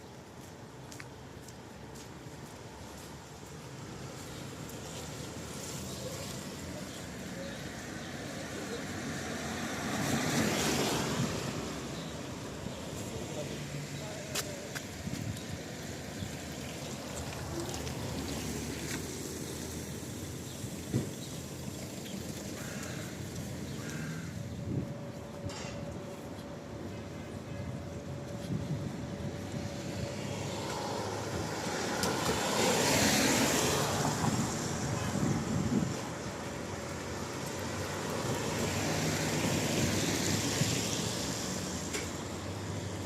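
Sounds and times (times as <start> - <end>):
car tyres hissing on wet road: 37.7 - 41.9.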